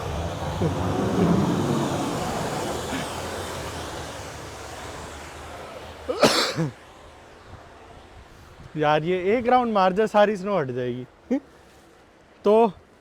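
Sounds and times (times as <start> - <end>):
snow plow truck engine and blade: 0.0 - 6.7.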